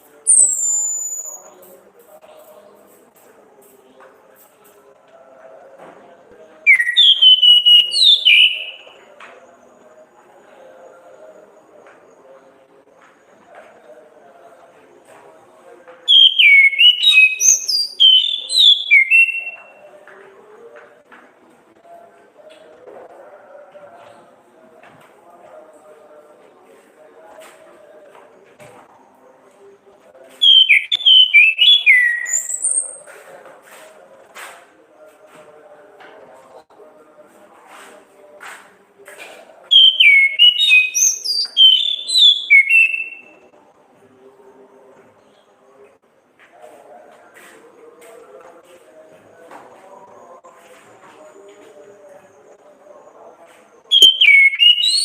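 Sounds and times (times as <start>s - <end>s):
faint low background murmur: 0.0s - 55.0s
thrush singing whistled notes: 0.3s - 1.6s, 6.7s - 9.1s, 16.1s - 19.8s, 30.4s - 33.1s, 39.7s - 43.3s, 53.9s - 55.0s.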